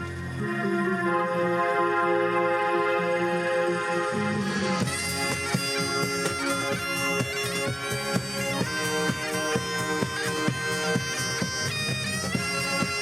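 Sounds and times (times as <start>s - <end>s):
drums beating: 4.4s - 13.0s
bagpipes playing lively tune: 4.8s - 13.0s.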